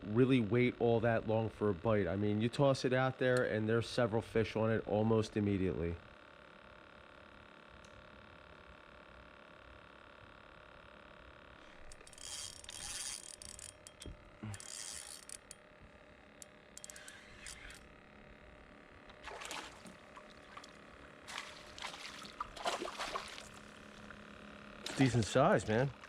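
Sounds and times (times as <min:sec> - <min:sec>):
water splashing: 0:19.2 - 0:24.2, 0:24.8 - 0:25.3.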